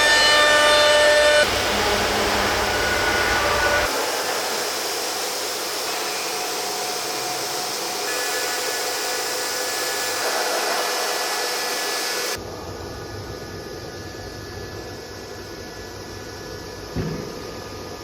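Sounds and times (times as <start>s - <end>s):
milling machine whirring: 0.0s - 12.4s.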